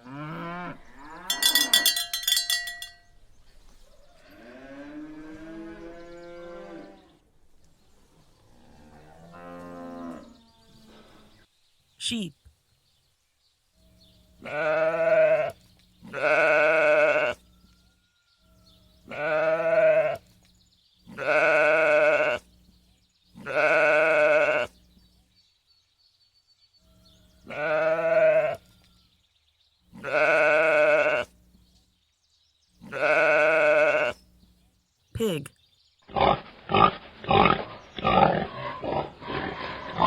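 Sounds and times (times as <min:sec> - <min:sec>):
sheep bleating: 0:14.4 - 0:17.4, 0:19.1 - 0:20.2, 0:21.1 - 0:22.4, 0:23.4 - 0:24.7, 0:27.4 - 0:28.6, 0:29.9 - 0:31.3, 0:32.8 - 0:34.2.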